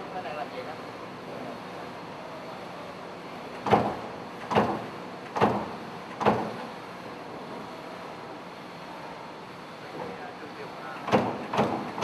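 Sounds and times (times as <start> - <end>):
workshop noise: 3.5 - 7.7, 10.9 - 12.0
sheet-metal machine clunks: 3.6 - 6.6, 11.0 - 12.0.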